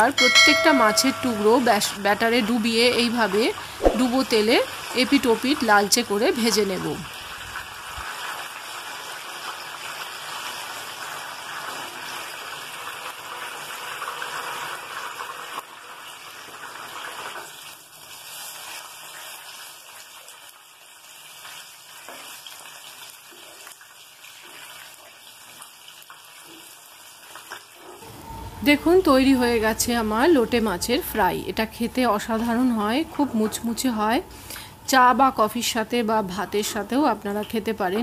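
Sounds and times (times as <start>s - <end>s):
fish deep-frying in oil: 0.0s - 28.0s.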